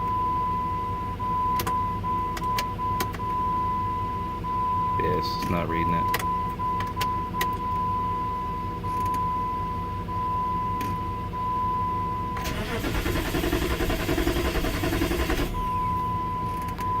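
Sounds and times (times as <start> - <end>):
car engine cranking: 12.4 - 16.8.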